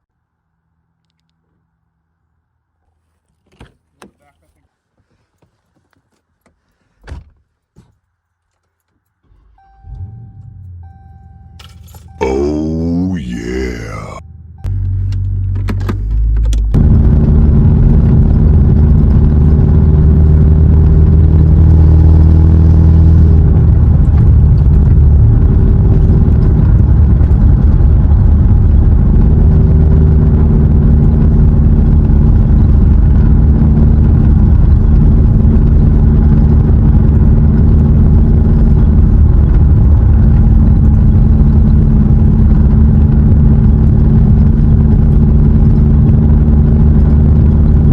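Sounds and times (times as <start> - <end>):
car engine starting and idling: 9.2 - 12.3, 14.2 - 19.7.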